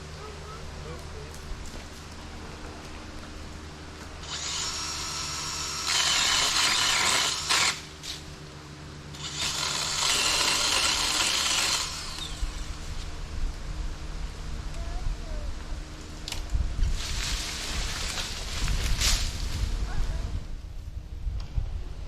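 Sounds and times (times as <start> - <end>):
steady low hum: 0.0 - 22.0
power saw cutting: 4.2 - 8.2, 9.1 - 12.7.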